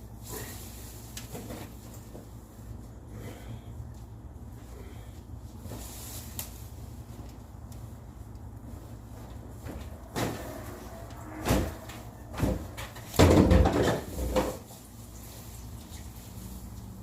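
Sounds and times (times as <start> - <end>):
hard objects knocking and clattering: 12.3 - 14.6.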